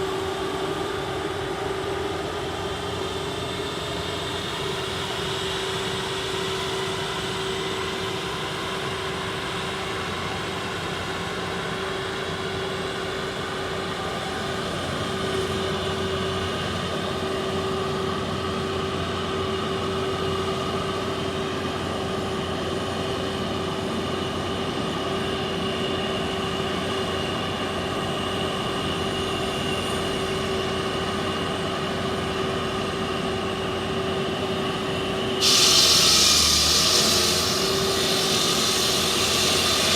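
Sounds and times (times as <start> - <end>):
concrete saw cutting asphalt: 35.4 - 39.9.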